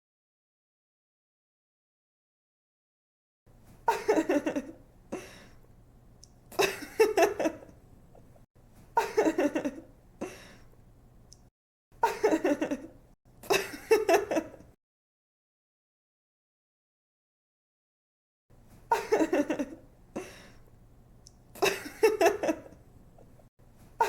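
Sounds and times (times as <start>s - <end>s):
woman giggling: 3.9s - 5.4s, 6.5s - 7.7s, 9.0s - 9.9s, 12.0s - 14.7s, 18.9s - 20.4s, 21.6s - 22.8s.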